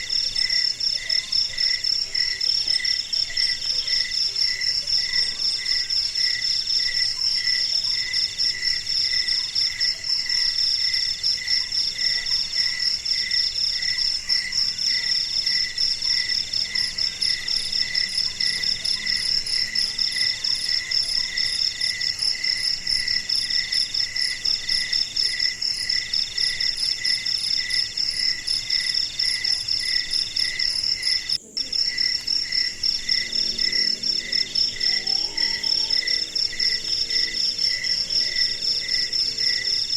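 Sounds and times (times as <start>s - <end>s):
crickets chirping: 0.0s - 39.9s
insect trills: 10.4s - 39.9s.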